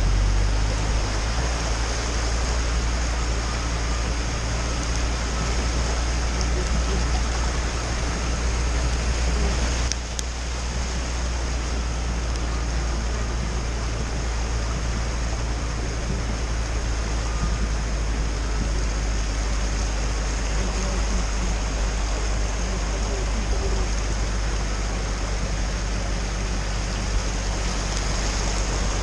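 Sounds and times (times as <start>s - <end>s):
van engine drone: 0.0s - 29.0s
water rushing around vehicle: 0.0s - 29.0s.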